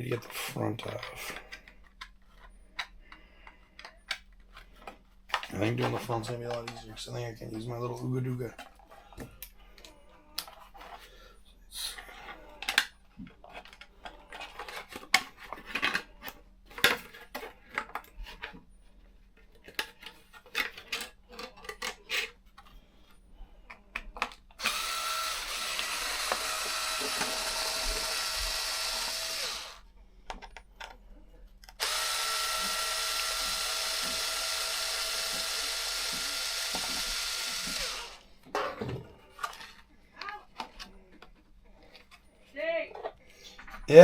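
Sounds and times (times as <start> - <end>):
cordless power driver whirring: 24.6 - 29.8, 31.7 - 38.2.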